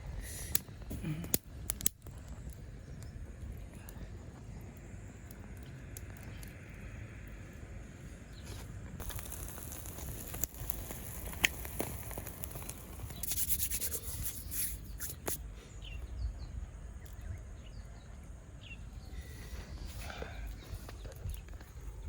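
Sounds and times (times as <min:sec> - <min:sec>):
faint bird chirps: 0:13.1 - 0:22.0.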